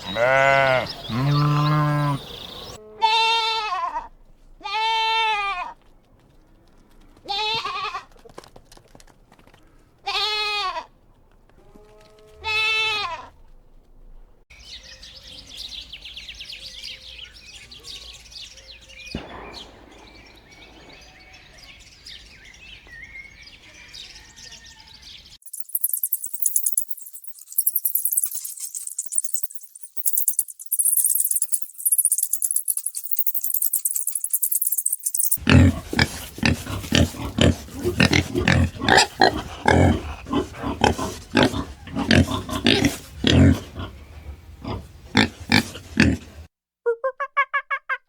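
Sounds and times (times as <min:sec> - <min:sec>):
high chirping calls: 0:00.0 - 0:02.8, 0:14.6 - 0:40.1
animal bleating: 0:00.0 - 0:05.8, 0:07.2 - 0:08.2, 0:10.0 - 0:10.9, 0:11.6 - 0:13.4
high jingling rattle: 0:25.4 - 0:35.4.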